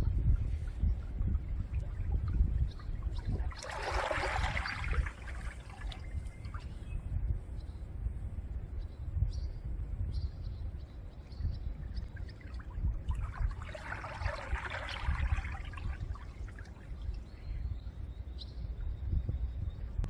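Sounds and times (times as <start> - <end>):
wind rumble on microphone: 0.0 - 20.0
waves washing on shore: 3.1 - 6.0, 13.3 - 16.5.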